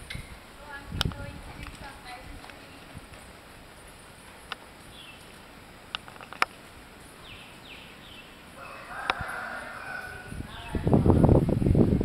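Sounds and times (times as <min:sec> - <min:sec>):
bird chirps: 0:03.8 - 0:05.4, 0:07.0 - 0:08.4
sharp clicks: 0:05.2 - 0:06.6.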